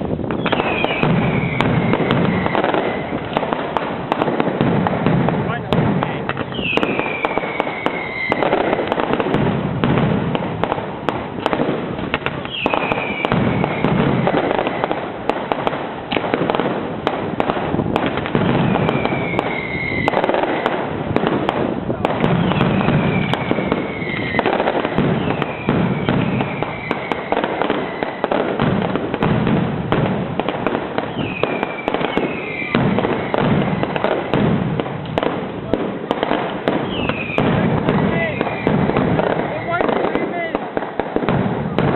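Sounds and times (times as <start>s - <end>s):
fireworks crackling and banging: 0.0s - 41.9s
firework falling whistle: 0.3s - 3.5s, 6.4s - 9.0s, 12.3s - 15.0s, 18.4s - 20.4s, 22.3s - 28.4s, 31.0s - 33.9s, 36.8s - 39.8s.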